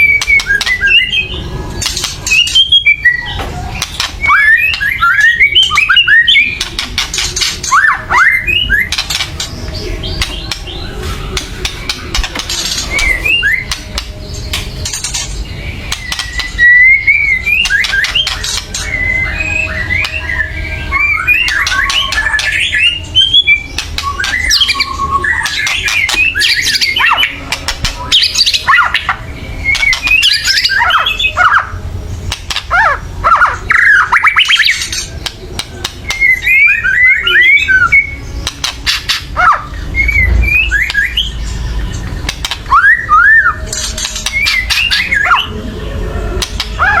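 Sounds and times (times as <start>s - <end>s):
bird whistled notes: 0.0s - 6.8s, 7.4s - 9.2s, 9.8s - 14.4s, 15.6s - 27.4s, 28.0s - 31.8s, 38.8s - 41.9s
bird harsh rattling calls: 5.6s - 16.8s, 17.5s - 20.2s, 21.0s - 39.9s.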